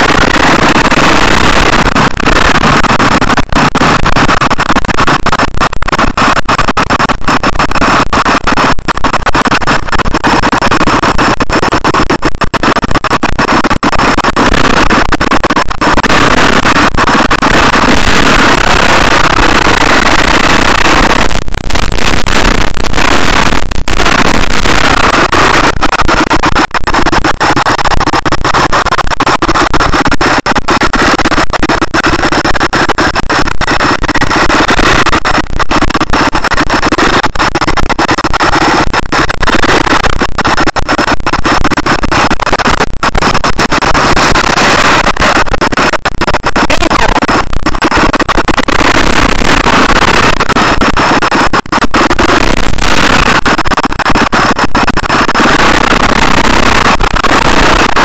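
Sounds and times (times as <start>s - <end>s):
dirt bike engine running hard: 14.0s - 26.8s.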